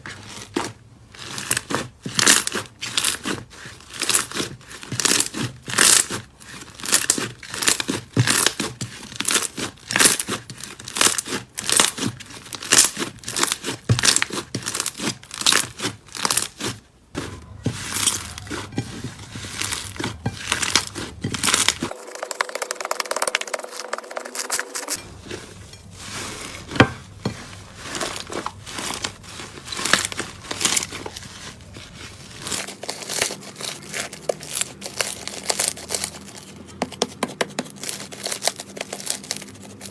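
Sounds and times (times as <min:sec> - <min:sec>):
slime crackling and popping: 0:00.5 - 0:16.8.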